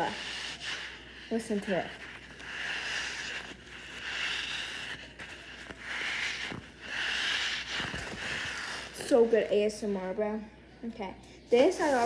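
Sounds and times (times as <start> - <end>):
soft hissing squishes: 0.0 - 9.7, 11.4 - 12.0.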